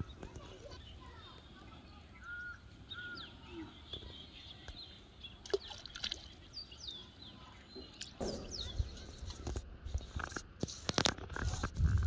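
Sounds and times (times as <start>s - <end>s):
small birds chirping: 0.0s - 10.5s.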